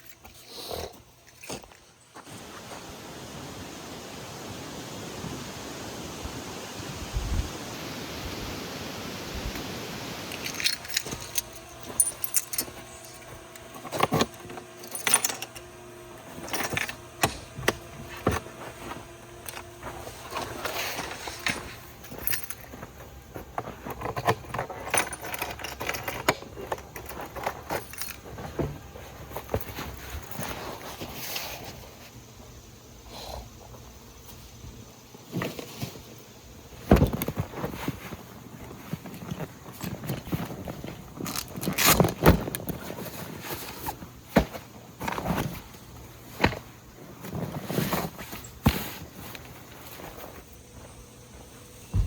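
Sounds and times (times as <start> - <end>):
footsteps crunching on ground: 1.0 - 3.2, 46.8 - 52.0
small metal objects clinking: 10.3 - 15.6.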